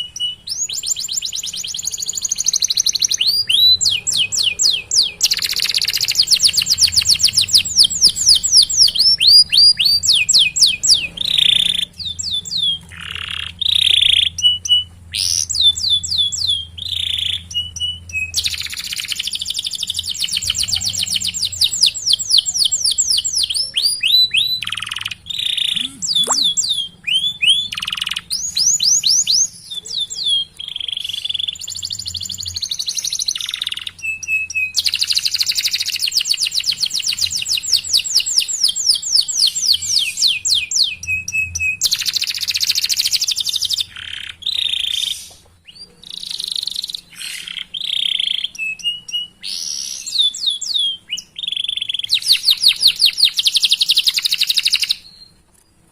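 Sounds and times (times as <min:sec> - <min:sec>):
canary singing trills: 0:00.0 - 0:55.7.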